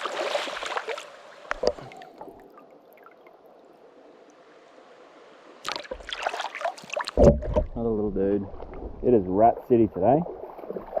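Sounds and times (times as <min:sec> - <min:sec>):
water splashing in a creek: 0:00.0 - 0:03.6, 0:04.2 - 0:11.0
faint wash of a creek: 0:00.0 - 0:11.0.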